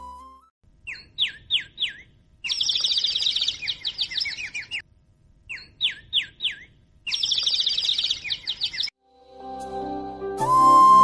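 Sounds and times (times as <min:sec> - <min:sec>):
songbird chirps and trills: 0:00.0 - 0:09.0.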